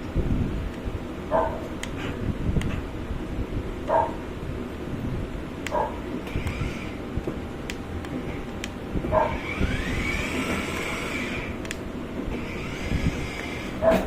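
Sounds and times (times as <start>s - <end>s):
dog barking: 1.3s - 1.6s, 3.9s - 4.2s, 5.7s - 6.0s
toy car motors whining: 6.3s - 7.0s, 9.2s - 11.6s, 12.3s - 14.0s
toy car wheels rumbling: 12.3s - 14.0s.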